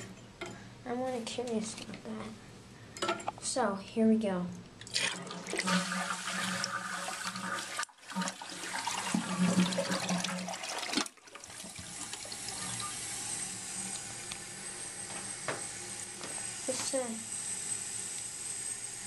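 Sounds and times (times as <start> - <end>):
toilet flushing: 4.8 - 19.0
toilet tank refilling hiss: 4.8 - 19.0.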